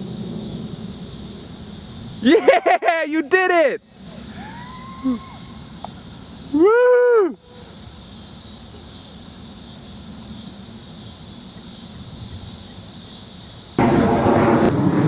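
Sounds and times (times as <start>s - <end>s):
continuous high hiss: 0.0s - 15.0s
loud rough rumbling noise: 13.8s - 15.0s.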